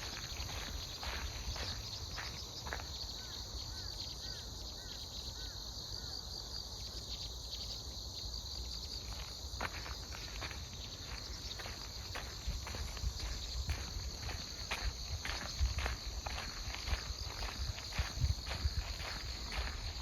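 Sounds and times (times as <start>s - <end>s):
footsteps on a path: 0.0s - 3.9s, 8.8s - 20.0s
crickets chirping: 0.0s - 20.0s.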